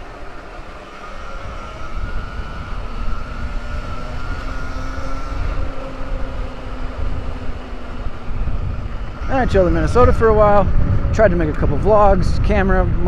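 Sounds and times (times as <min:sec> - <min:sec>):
electric motorbike motor whining: 0:00.0 - 0:13.0
wind rumbling on microphone: 0:00.0 - 0:13.0.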